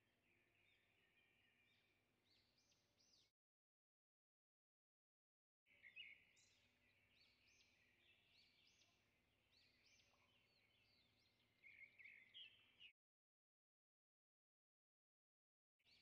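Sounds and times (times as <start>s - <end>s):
faint birdsong chirps and whistles: 0.0s - 3.3s, 5.7s - 13.0s.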